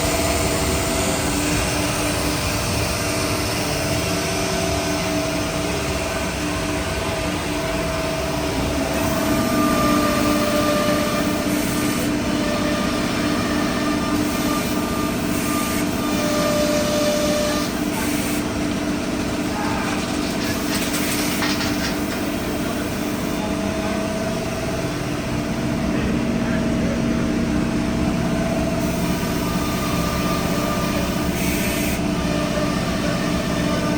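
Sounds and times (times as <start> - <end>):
higher machine tone: 0.0 - 17.9
cnc router droning: 0.0 - 33.9.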